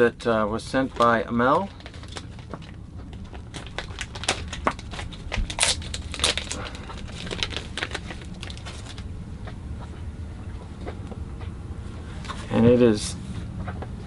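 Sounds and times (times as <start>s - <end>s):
plastic wrapping crinkling: 0.9s - 9.1s.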